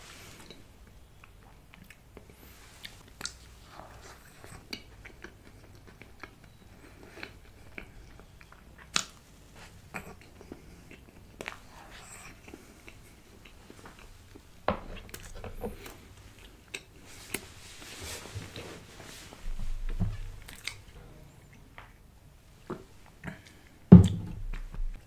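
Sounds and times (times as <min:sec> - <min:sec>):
wet chewing: 0:00.5 - 0:17.5, 0:20.3 - 0:22.0
mouth smacks and clicks: 0:04.3 - 0:09.2, 0:20.4 - 0:20.9.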